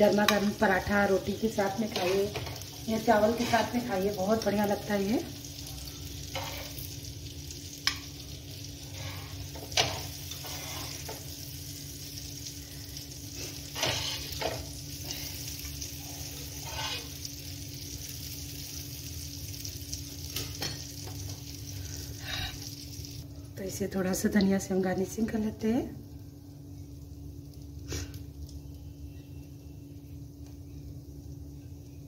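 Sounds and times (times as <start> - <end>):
vegetable slices sizzling: 0.0 - 23.2.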